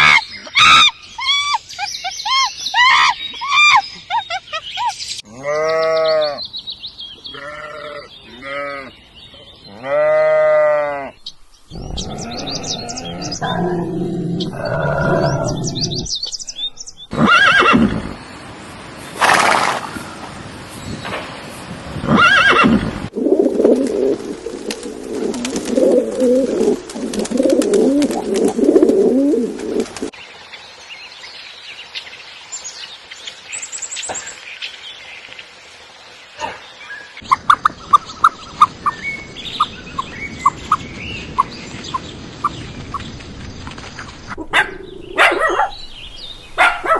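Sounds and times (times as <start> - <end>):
animal bleating: 5.3 - 6.4, 7.3 - 8.9, 9.7 - 11.2
horse neighing loudly: 17.1 - 18.1, 22.1 - 22.9
pigeons cooing: 22.4 - 30.1.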